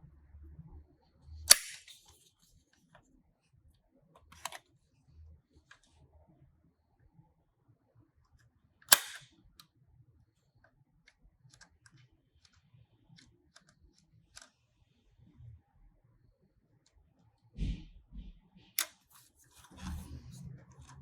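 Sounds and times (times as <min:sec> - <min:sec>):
toy car sharp click: 0:01.5 - 0:02.0, 0:08.9 - 0:09.3.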